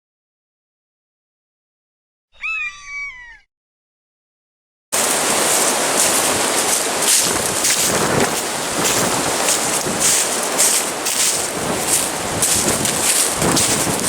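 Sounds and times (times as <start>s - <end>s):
falling pitched cry: 2.3s - 3.5s
steady hissing rush of noise: 5.0s - 14.0s.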